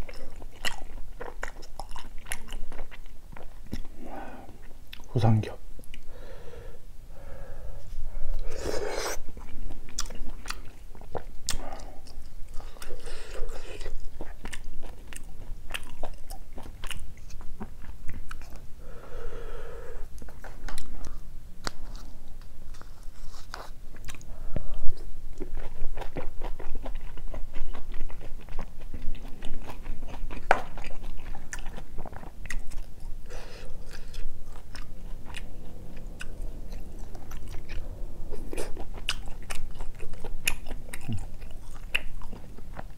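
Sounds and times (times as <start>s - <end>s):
wet chewing and mouth smacks: 0.0s - 4.0s, 9.3s - 18.6s, 24.9s - 42.9s.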